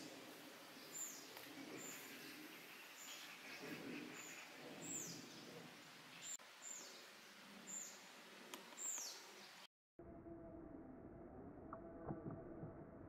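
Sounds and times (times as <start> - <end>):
faint outdoor background noise: 0.0 - 9.7.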